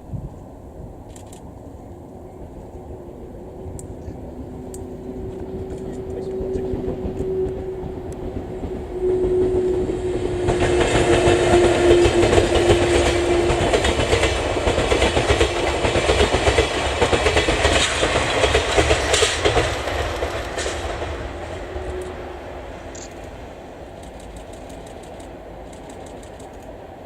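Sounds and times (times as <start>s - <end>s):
train wheel clatter over rail joints: 10.0s - 22.1s.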